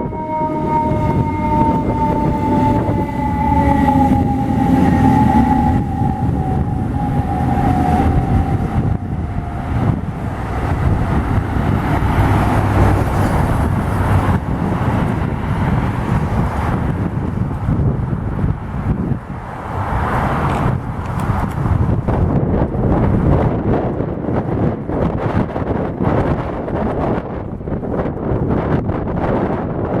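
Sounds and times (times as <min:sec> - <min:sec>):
fire truck siren: 0:00.0 - 0:15.7
road noise: 0:00.0 - 0:30.0
diesel engine rumble: 0:00.7 - 0:29.0.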